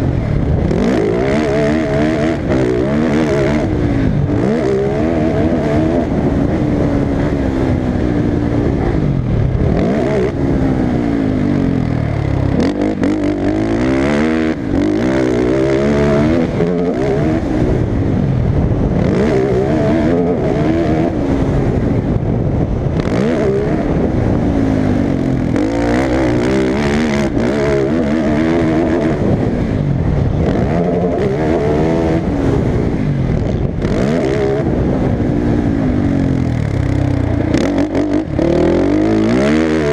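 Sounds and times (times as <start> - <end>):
motocross engine revving: 0.0 - 39.9.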